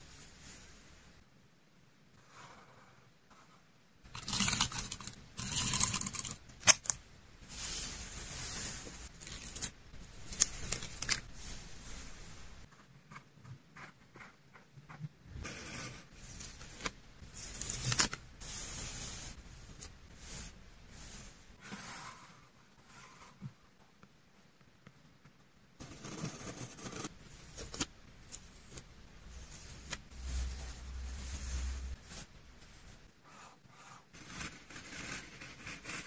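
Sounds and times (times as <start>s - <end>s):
paper and plastic crinkling: 9.0s - 12.5s.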